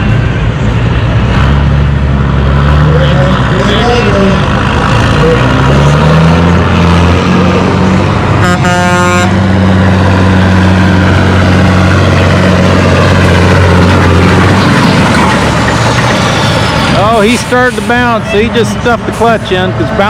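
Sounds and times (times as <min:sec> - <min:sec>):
truck engine pulling under load: 0:00.0 - 0:20.0
truck horn: 0:08.3 - 0:09.6.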